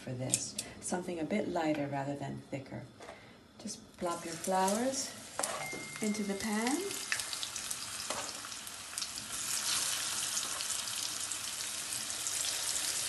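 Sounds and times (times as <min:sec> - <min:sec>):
food frying in oil: 0:04.0 - 0:13.0.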